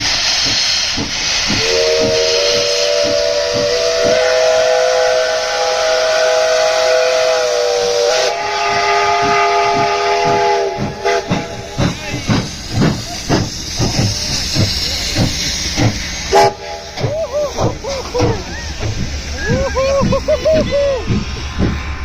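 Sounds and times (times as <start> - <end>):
loud steam hiss: 0.0 - 22.0
low rhythmic pulses: 0.4 - 4.8, 8.4 - 22.0
steam locomotive whistle: 1.6 - 11.6, 16.3 - 17.5.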